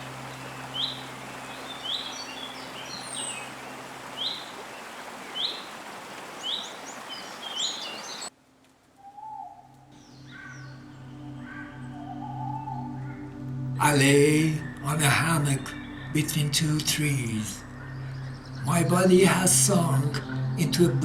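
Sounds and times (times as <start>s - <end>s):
soft music: 0.0s - 4.4s, 9.4s - 21.0s
faint chirps of other birds: 0.0s - 8.3s, 9.0s - 13.6s
forest ambience hiss: 0.0s - 11.6s
bird chirping sharply: 0.1s - 8.3s.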